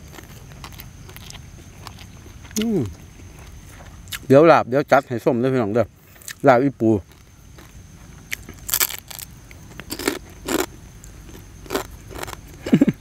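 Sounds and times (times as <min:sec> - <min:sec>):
crab shell crunching: 0:07.1 - 0:12.6.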